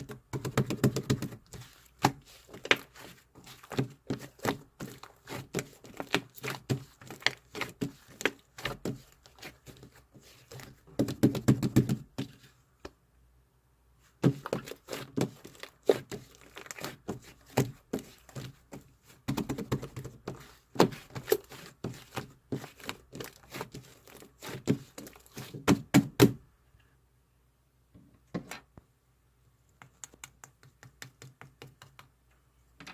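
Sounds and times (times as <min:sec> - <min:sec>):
light taps and clicks: 0:29.7 - 0:32.9.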